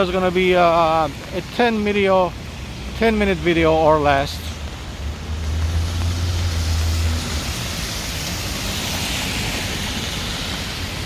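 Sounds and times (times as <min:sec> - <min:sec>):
rain hiss on wet roads: 0:00.0 - 0:11.0
low vehicle rumble: 0:02.3 - 0:11.0.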